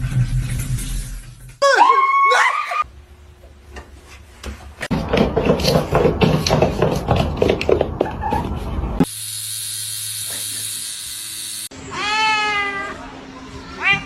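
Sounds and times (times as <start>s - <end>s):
cat meowing: 11.9s - 13.0s.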